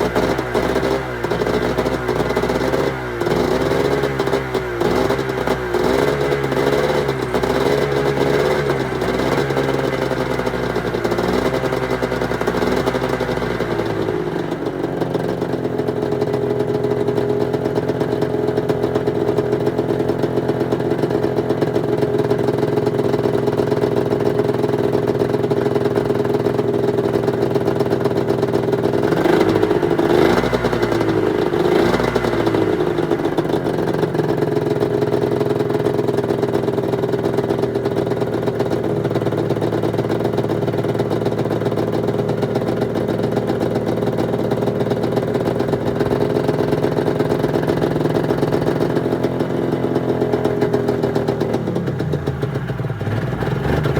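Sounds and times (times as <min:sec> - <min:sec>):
snowmobile engine idling: 0:00.0 - 0:53.9.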